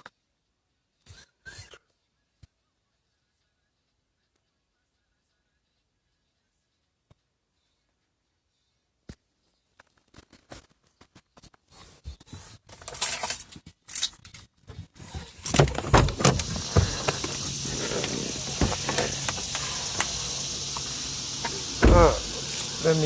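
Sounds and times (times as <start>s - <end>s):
steady hiss: 15.4s - 23.0s.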